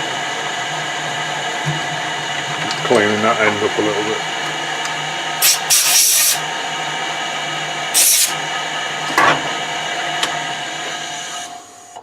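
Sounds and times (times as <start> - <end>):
machine tool humming: 3.2 - 9.0
hissing metal cutting: 5.4 - 6.4, 7.9 - 8.4.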